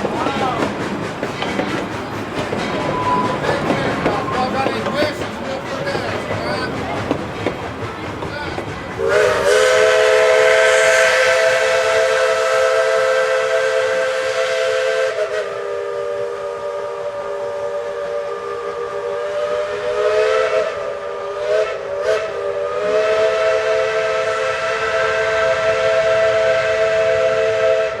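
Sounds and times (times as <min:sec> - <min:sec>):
steam hissing: 0:00.0 - 0:28.0
steam whistle chord: 0:09.0 - 0:28.0.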